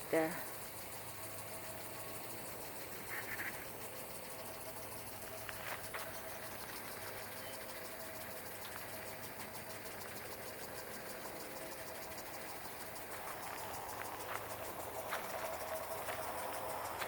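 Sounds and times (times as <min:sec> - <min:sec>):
machine-like hum: 0:00.0 - 0:17.0.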